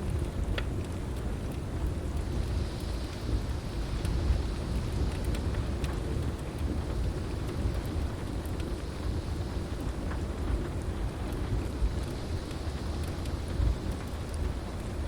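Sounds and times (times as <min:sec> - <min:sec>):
heavy rain: 0:00.0 - 0:15.0
wood fire crackling: 0:00.0 - 0:15.0.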